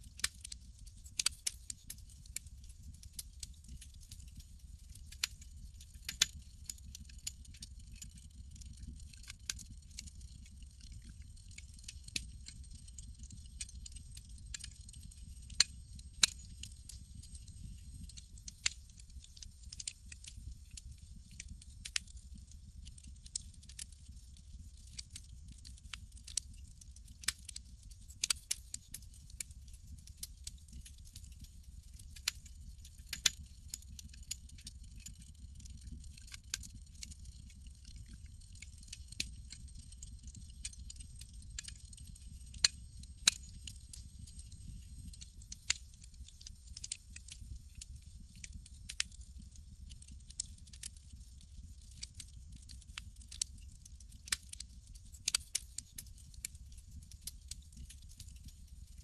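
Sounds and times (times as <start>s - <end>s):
campfire crackling: 34.0s - 49.1s, 49.8s - 51.1s.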